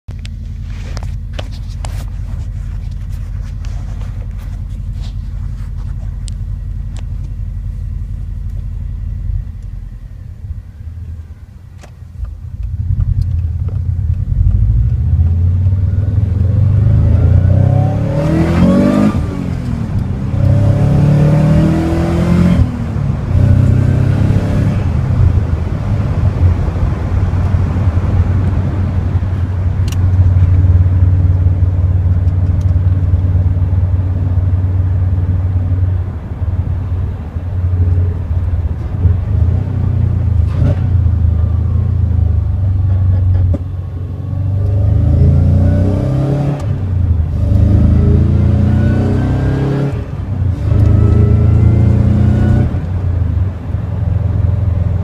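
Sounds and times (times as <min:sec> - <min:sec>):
car engine revving: 0:01.0 - 0:55.0.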